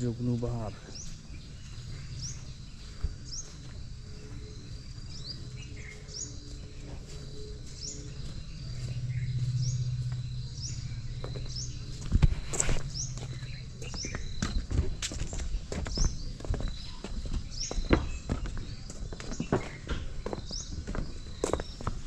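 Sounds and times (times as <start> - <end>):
bird chirping: 0.0 - 22.0
footsteps on wooden planks: 0.1 - 22.0
low rumble: 1.2 - 16.4.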